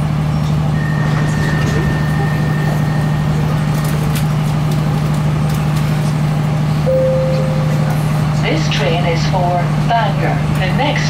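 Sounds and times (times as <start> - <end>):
train air-conditioning hum: 0.0 - 11.0
lower steady tone: 6.8 - 8.0
thin high tone: 6.9 - 8.0.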